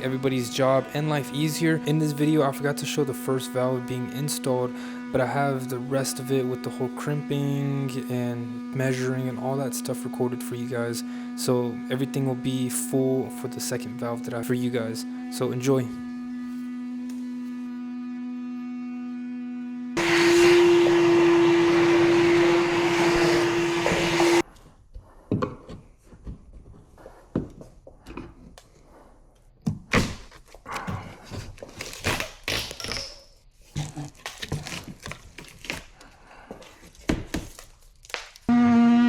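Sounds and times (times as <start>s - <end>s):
handheld power tool humming: 0.0s - 24.5s.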